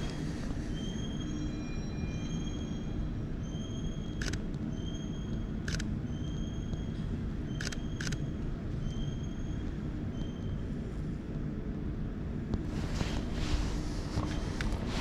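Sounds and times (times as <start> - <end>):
faint high whining tones: 0.0 - 11.2
low rumble: 11.7 - 15.0.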